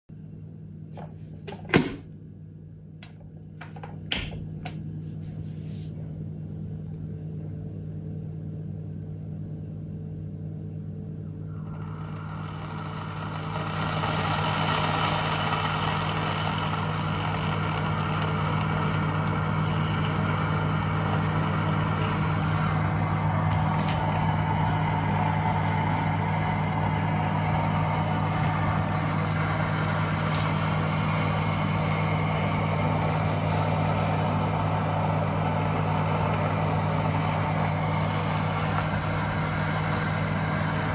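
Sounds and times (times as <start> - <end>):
kettle low hum: 0.9 - 2.2, 2.8 - 7.5, 11.1 - 40.9
kettle switch clicks: 3.0 - 4.8
kettle water rushing hiss: 11.5 - 40.9.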